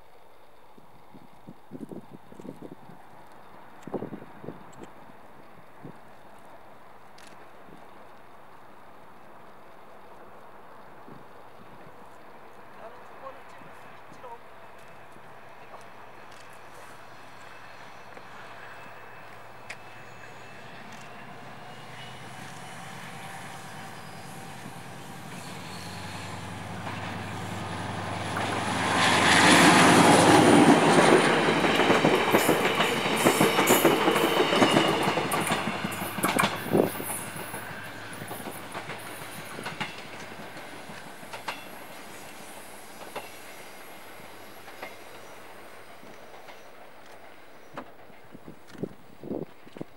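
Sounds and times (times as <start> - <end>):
locomotive engine hum: 6.4 - 48.8
wheels clicking over rail joints: 24.9 - 42.4.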